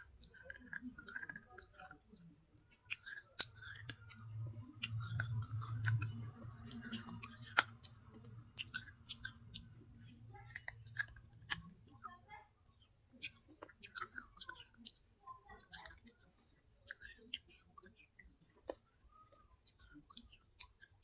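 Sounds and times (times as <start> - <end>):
crunchy chewing: 0.0 - 21.0
low hum: 3.2 - 12.4.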